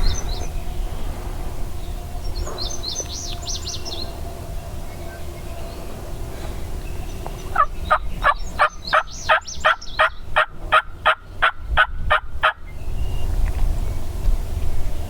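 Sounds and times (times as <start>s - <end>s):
turkey yelping: 7.5s - 12.6s.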